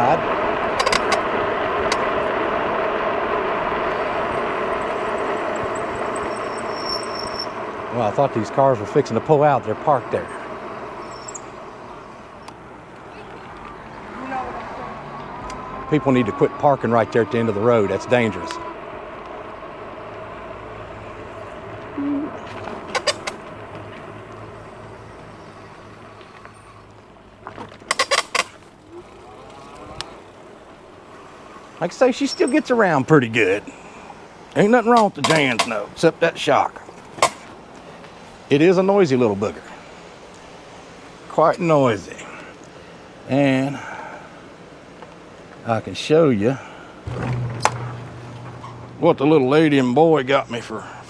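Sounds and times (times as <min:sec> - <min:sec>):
electric motor hum: 0:00.0 - 0:26.0, 0:47.0 - 0:50.2
electric bike road noise: 0:00.0 - 0:51.0
bike rattling knocks: 0:27.4 - 0:30.2, 0:34.9 - 0:36.0, 0:37.0 - 0:37.6, 0:47.0 - 0:49.1.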